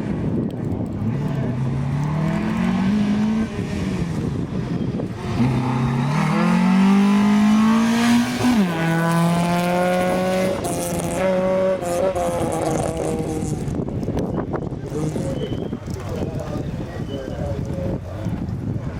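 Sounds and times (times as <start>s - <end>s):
rally car engine accelerating: 0.8s - 13.9s.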